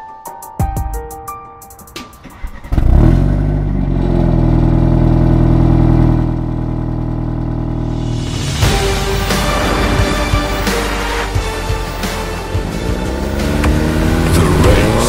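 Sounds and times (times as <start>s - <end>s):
music: 0.0s - 3.3s, 7.8s - 15.0s
car engine starting and idling: 1.9s - 15.0s.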